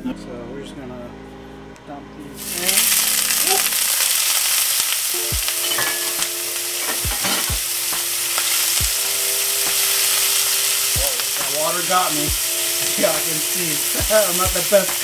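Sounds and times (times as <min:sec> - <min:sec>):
meatballs sizzling in a frying pan: 0:02.4 - 0:15.0.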